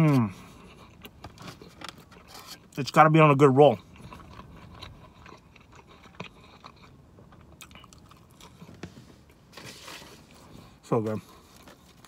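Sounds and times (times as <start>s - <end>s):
person chewing with mouth closed: 0.0s - 2.7s, 3.7s - 8.9s, 10.3s - 12.0s.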